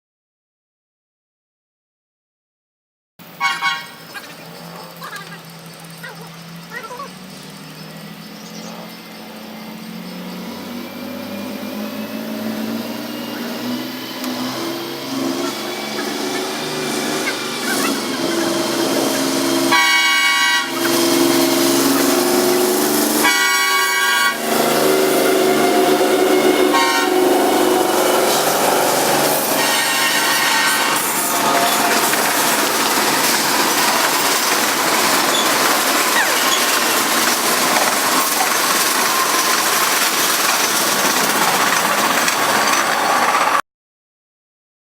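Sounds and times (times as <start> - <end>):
diesel locomotive drone: 3.2 - 43.6
train wheels on rail: 3.2 - 43.6
train air horn: 3.4 - 4.0, 14.4 - 32.5.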